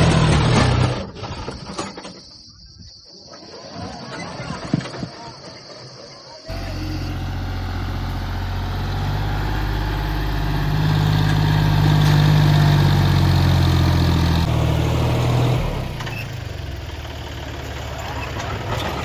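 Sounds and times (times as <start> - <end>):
diesel tractor engine running: 6.5 - 19.0.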